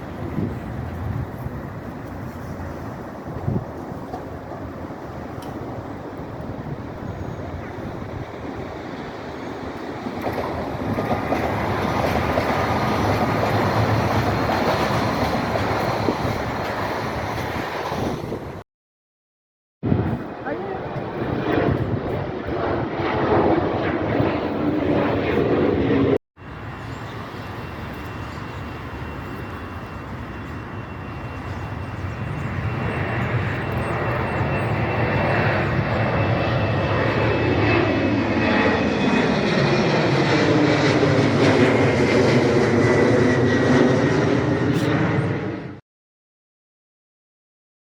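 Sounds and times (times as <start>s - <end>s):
steady high whine: 26.4s - 40.6s.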